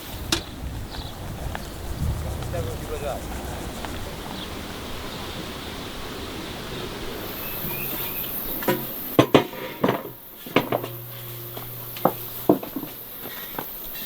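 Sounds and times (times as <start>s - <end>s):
steady background hiss: 0.0s - 14.0s
sharp knocks and clatters: 8.6s - 13.7s.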